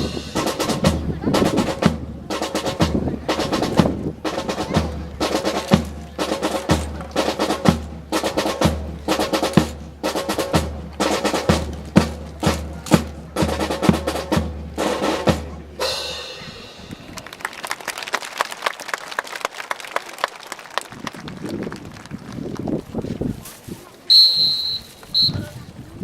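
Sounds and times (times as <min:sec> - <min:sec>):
bass drum beats: 0:00.0 - 0:17.1
snare drum strokes and rolls: 0:00.0 - 0:17.4.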